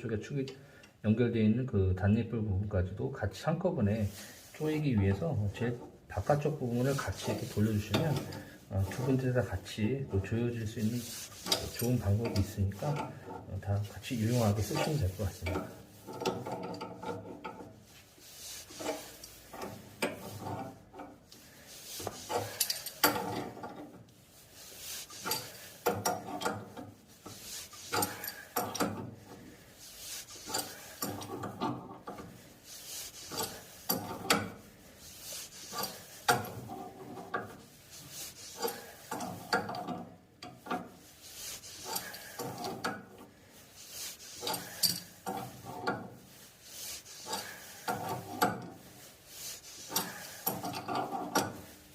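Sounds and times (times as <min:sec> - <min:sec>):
wrench clicking and scraping: 0:11.0 - 0:13.4, 0:14.3 - 0:17.7, 0:18.3 - 0:24.0, 0:24.6 - 0:51.9.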